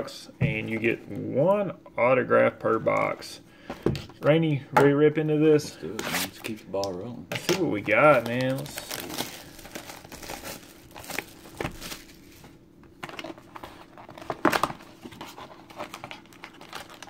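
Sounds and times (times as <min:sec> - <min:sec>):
shrink wrap tearing: 0:07.4 - 0:12.4
plastic shrink wrap crackling: 0:07.4 - 0:17.0.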